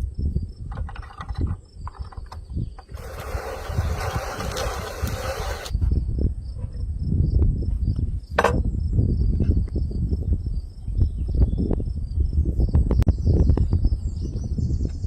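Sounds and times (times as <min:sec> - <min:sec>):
crickets chirping: 0:00.0 - 0:12.8
hiss: 0:03.0 - 0:05.8.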